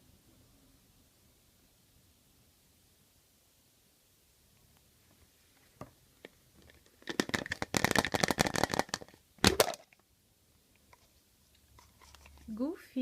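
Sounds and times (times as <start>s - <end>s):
chocolate egg cracking: 6.3s - 10.0s
foil wrapper crinkling and tearing: 6.8s - 9.9s.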